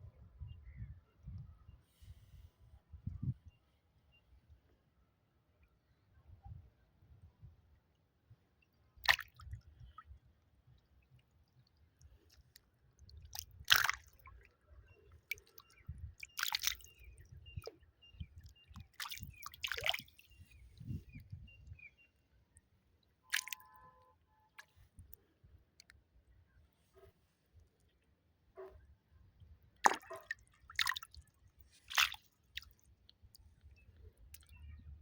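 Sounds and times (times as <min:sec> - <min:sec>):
water sloshing: 0:12.1 - 0:14.4, 0:18.7 - 0:21.0, 0:23.3 - 0:23.8, 0:29.8 - 0:32.8
water slapping and splashing: 0:13.3 - 0:14.2, 0:18.8 - 0:20.2, 0:23.3 - 0:23.6, 0:29.8 - 0:31.1, 0:31.8 - 0:32.7.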